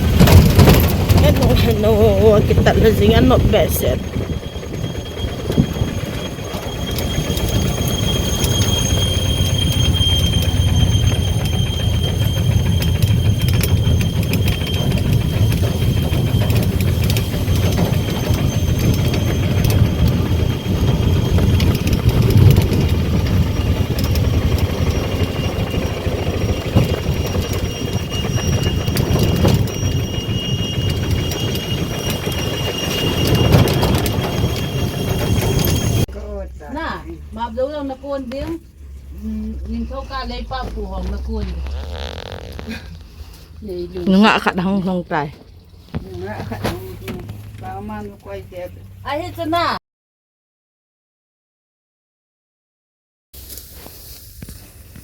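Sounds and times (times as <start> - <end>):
rattling and clicking: 0.0 - 36.1
mechanical rumble: 0.0 - 49.7.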